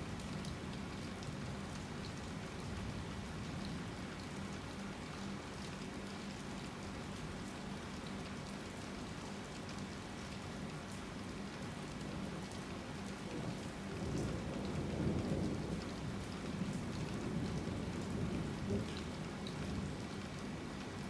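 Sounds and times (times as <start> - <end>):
low rumble of thunder: 13.3 - 20.4
heavy rain falling: 13.5 - 21.0.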